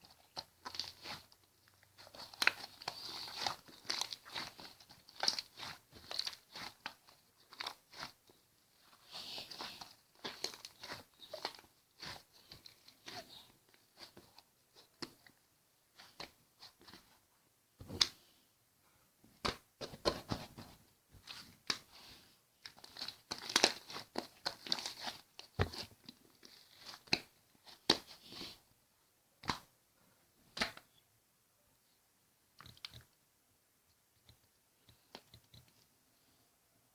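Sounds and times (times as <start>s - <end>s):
slime crackling and squishing: 0.0s - 15.3s, 22.6s - 28.5s.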